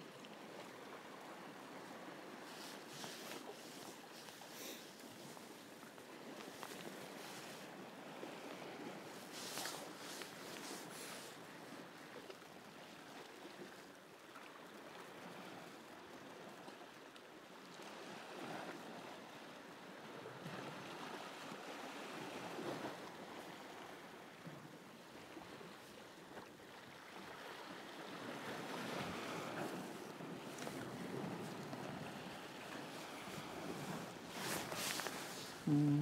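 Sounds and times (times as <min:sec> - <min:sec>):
sea waves washing against shore: 0:01.1 - 0:11.9, 0:26.8 - 0:35.7.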